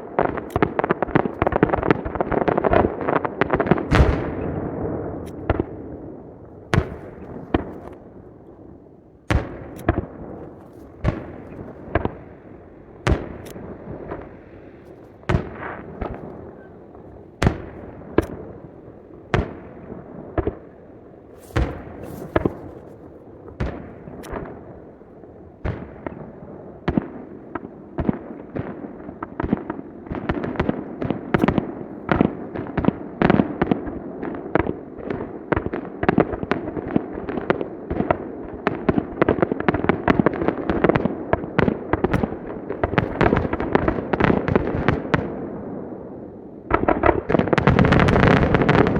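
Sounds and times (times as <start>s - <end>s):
firework crackle: 0.0s - 26.0s, 39.8s - 45.5s, 46.7s - 48.9s
firework booms: 0.0s - 48.9s.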